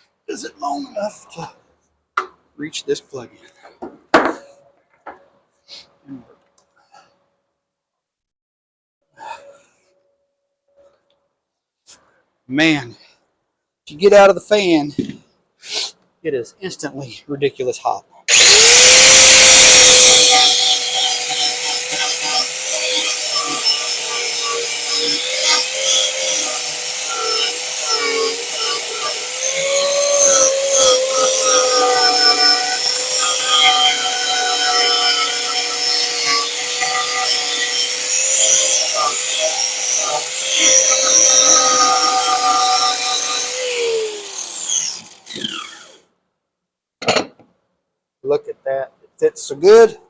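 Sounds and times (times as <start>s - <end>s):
wood rasping: 18.3s - 45.9s
power tool motor whine: 18.3s - 46.0s.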